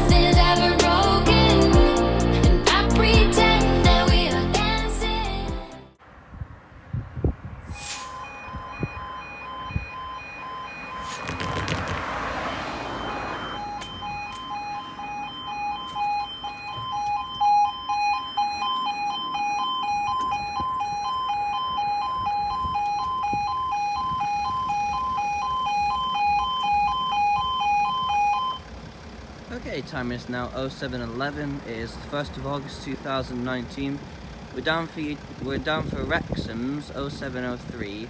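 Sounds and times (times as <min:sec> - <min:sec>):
level crossing alarm two-tone: 0:07.8 - 0:11.8, 0:12.7 - 0:28.7
rush of passing noise: 0:10.4 - 0:14.2.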